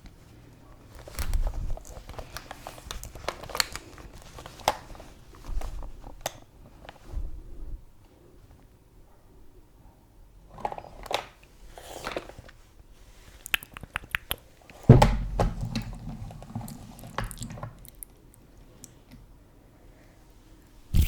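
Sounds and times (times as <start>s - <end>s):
soft rustles: 0.2s - 8.6s
loud thump: 14.9s - 15.6s.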